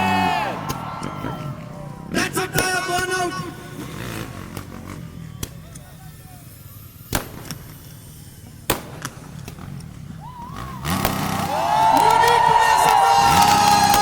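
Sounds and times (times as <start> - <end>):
firecracker bangs: 7.0 - 9.8, 10.8 - 14.0.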